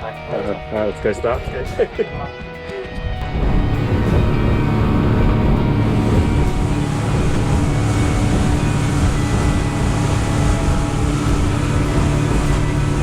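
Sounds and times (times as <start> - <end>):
boat engine rumbling: 3.1 - 13.0.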